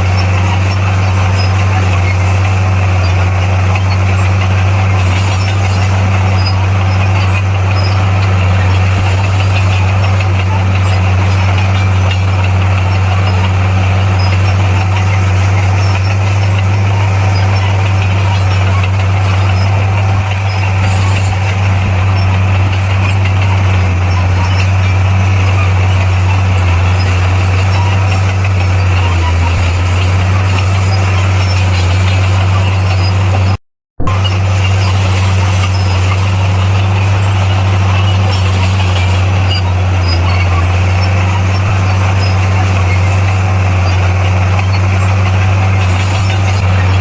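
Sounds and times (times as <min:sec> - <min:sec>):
bulldozer diesel engine droning: 0:00.0 - 0:47.0.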